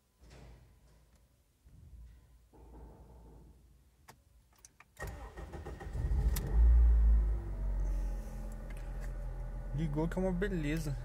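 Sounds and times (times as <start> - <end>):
car engine starting and idling: 5.0 - 11.0.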